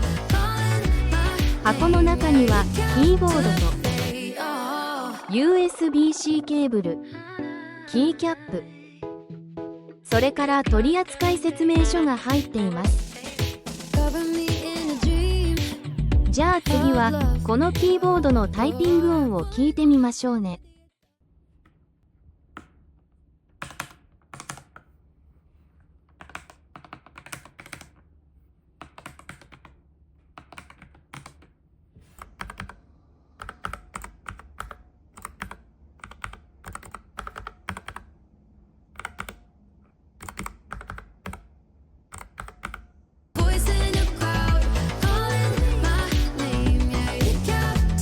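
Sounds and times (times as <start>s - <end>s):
loud music: 0.0s - 6.6s, 10.1s - 19.4s, 43.4s - 48.0s.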